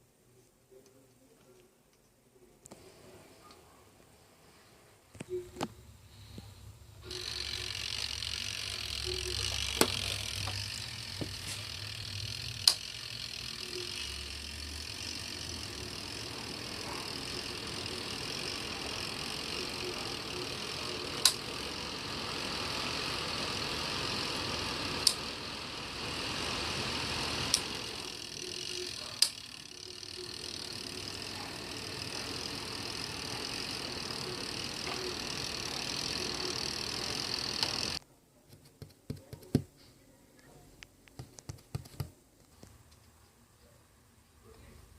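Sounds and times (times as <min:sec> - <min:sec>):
fan airflow hiss: 0:05.8 - 0:28.6
sharp clicks: 0:12.4 - 0:12.9, 0:21.2 - 0:21.4.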